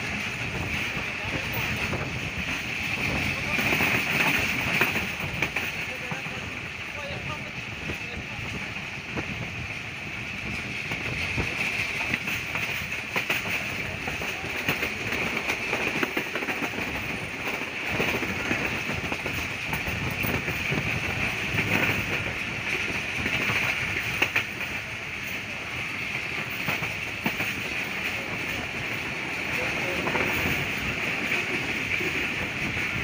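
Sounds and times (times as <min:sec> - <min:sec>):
clacks over rail joints: 0:00.0 - 0:33.0
train wheels rumbling on rail: 0:00.0 - 0:33.0.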